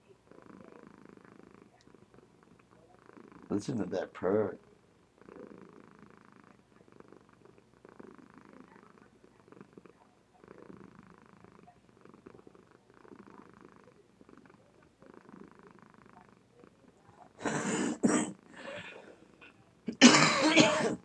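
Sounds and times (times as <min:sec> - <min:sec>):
cat purring softly: 0:00.0 - 0:19.8.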